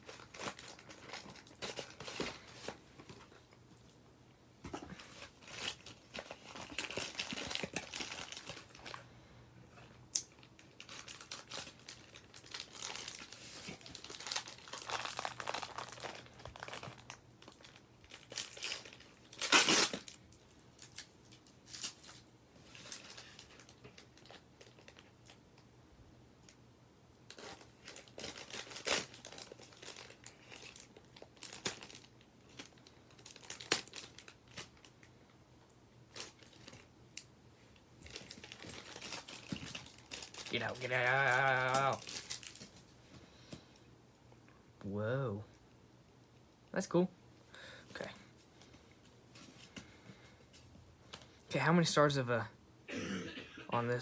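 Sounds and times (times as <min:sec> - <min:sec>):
packaging tearing: 0:00.0 - 0:02.8, 0:05.0 - 0:09.0, 0:10.1 - 0:20.2, 0:20.8 - 0:25.1, 0:27.3 - 0:34.9, 0:38.0 - 0:42.7
packaging crinkling and rustling: 0:00.0 - 0:03.9, 0:04.7 - 0:09.0, 0:10.1 - 0:25.6, 0:27.2 - 0:35.1, 0:36.1 - 0:43.8.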